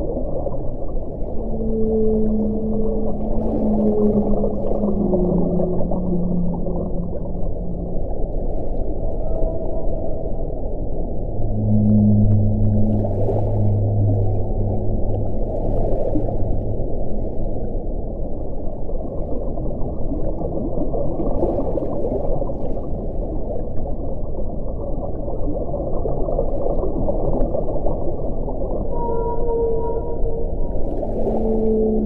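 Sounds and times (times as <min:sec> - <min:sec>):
deep hum: 0:00.0 - 0:19.7, 0:28.7 - 0:32.0
howling wind tone: 0:00.0 - 0:20.0, 0:28.7 - 0:32.0
wind blowing: 0:03.0 - 0:18.7.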